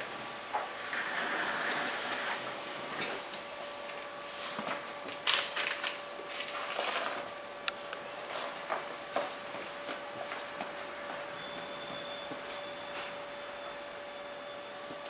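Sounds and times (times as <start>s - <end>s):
faint steady hum: 0.0s - 15.0s
packaging rustling and crinkling: 3.9s - 7.4s.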